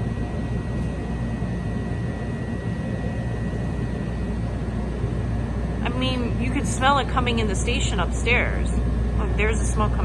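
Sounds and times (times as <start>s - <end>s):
thin high whine: 0.0s - 10.0s.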